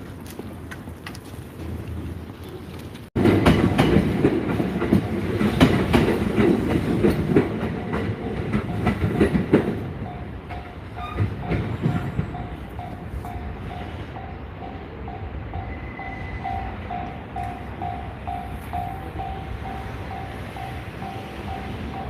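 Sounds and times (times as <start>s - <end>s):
train wheels clacking over rail joints: 3.2s - 14.1s
crossing warning bell dinging: 3.2s - 22.0s.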